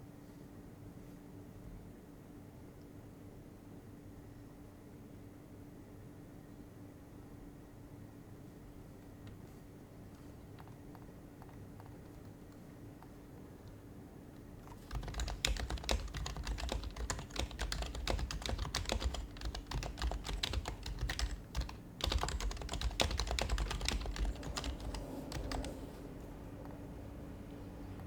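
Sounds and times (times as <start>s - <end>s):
fast typing on keyboard: 10.4s - 12.6s, 14.6s - 26.0s.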